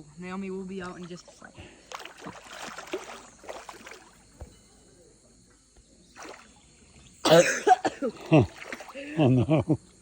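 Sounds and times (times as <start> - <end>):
loud water splash: 1.9 - 4.2, 8.1 - 9.0.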